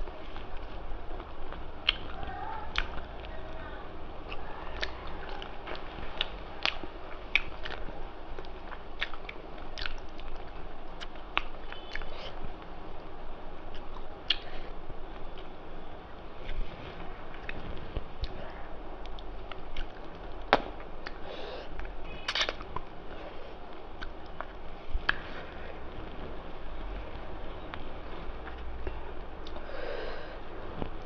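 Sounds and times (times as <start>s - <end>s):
person chewing food: 4.2s - 12.4s, 13.6s - 15.5s, 16.4s - 25.9s, 27.7s - 29.7s.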